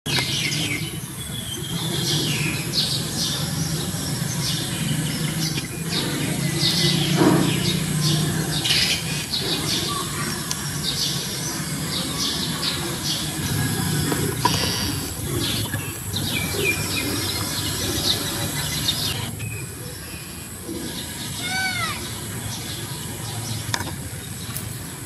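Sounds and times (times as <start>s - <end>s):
small birds chirping: 0.1s - 25.0s.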